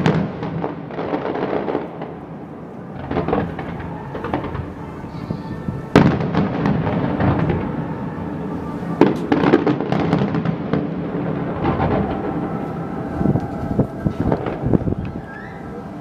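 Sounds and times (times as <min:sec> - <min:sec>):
fireworks bursting: 0:00.0 - 0:16.0
fireworks crackling: 0:00.0 - 0:16.0
background rumble: 0:10.5 - 0:16.0.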